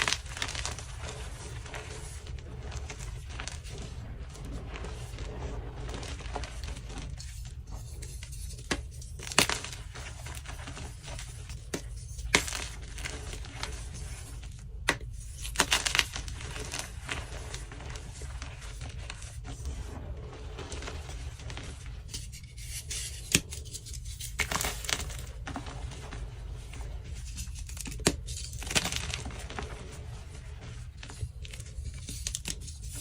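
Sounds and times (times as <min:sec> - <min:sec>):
chalk blocks crumbling: 0:20.4 - 0:33.0.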